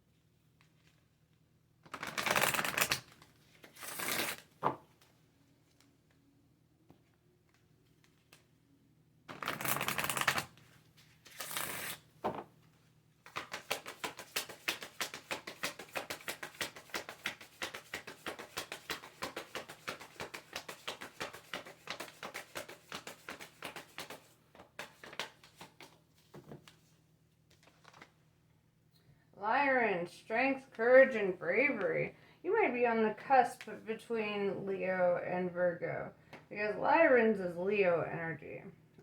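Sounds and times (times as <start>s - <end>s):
cards riffling: 1.9s - 4.6s, 9.3s - 10.6s, 11.2s - 12.0s, 13.2s - 26.0s.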